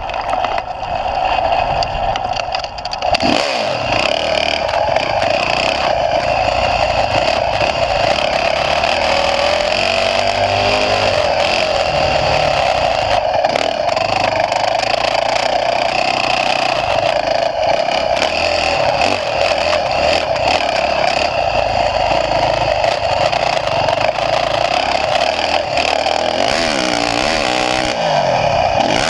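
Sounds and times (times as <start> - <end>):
dirt bike engine revving: 1.2 - 29.0.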